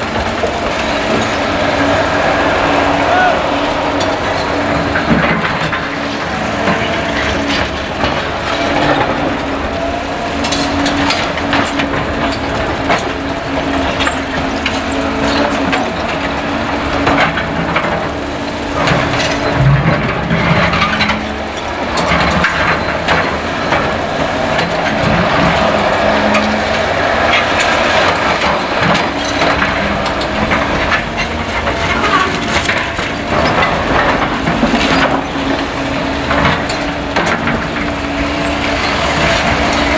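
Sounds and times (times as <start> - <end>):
excavator diesel engines: 0.0 - 39.9.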